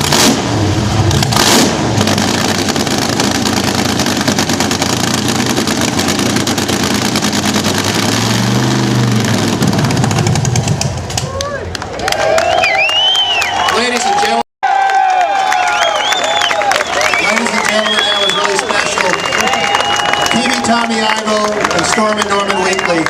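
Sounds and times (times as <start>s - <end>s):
dragster engines rattling loudly: 0.0s - 11.9s, 17.0s - 23.0s.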